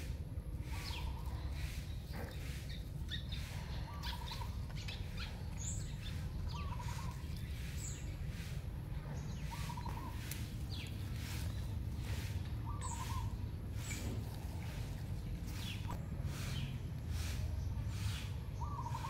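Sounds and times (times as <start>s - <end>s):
steady low rumble: 0.0s - 19.0s
high bird chirps: 0.7s - 14.2s.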